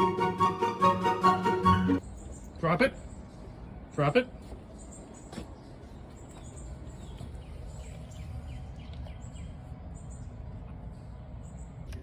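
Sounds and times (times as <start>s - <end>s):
steady low background noise: 0.0s - 12.0s.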